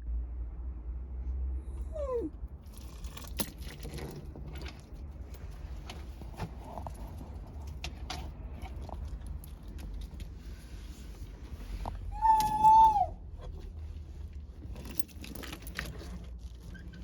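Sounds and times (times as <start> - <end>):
dog whining: 1.7 - 2.4, 12.0 - 13.6.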